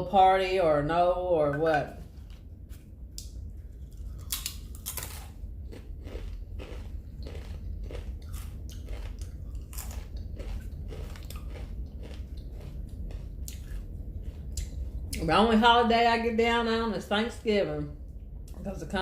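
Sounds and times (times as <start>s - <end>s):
person chewing food: 2.0s - 15.2s.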